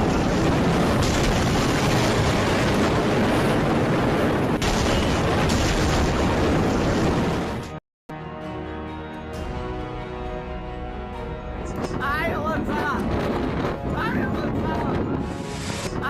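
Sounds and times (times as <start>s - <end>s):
rushing floodwater roar: 0.0s - 7.7s.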